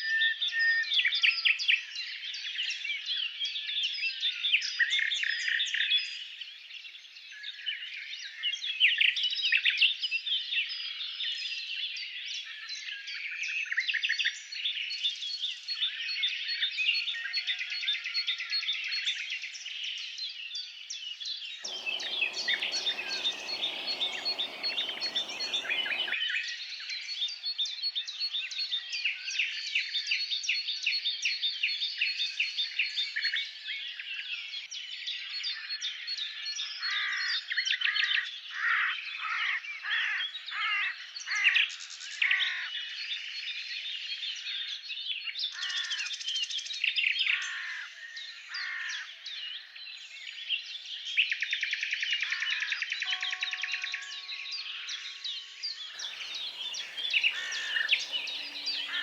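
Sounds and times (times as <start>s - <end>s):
bird downward-sliding whistles: 21.7s - 26.2s, 56.0s - 59.0s
birds chirping and trilling: 21.7s - 26.2s, 56.0s - 59.0s
rushing noise: 21.7s - 26.2s, 56.0s - 59.0s.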